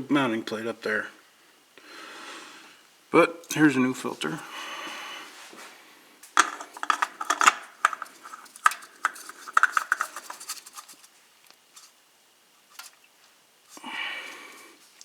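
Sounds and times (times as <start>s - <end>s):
metallic clinks and rattles: 6.4s - 10.8s.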